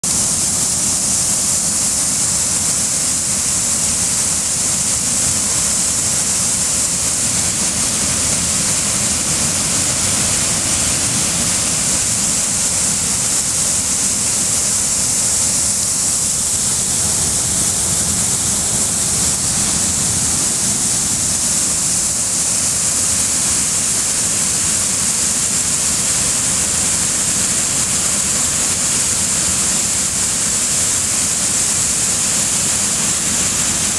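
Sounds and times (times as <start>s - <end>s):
water rushing from a dam: 0.1s - 33.9s.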